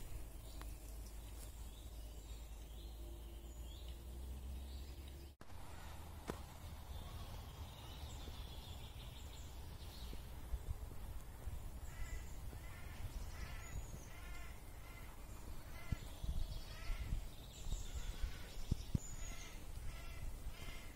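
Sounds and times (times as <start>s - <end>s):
steady low rumble: 0.0s - 20.9s
bird harsh calls: 11.7s - 20.9s.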